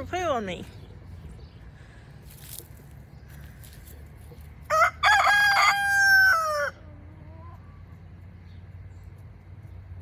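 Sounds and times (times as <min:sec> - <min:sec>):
rooster crowing: 0:04.7 - 0:07.4.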